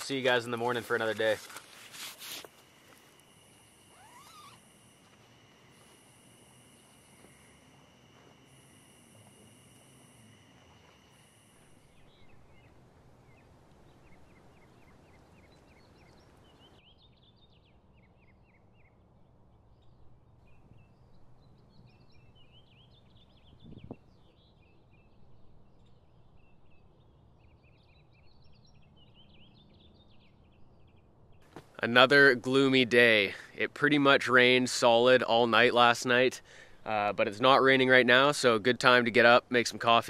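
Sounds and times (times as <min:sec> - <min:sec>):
small birds chirping: 0:00.0 - 0:19.0, 0:19.7 - 0:32.8.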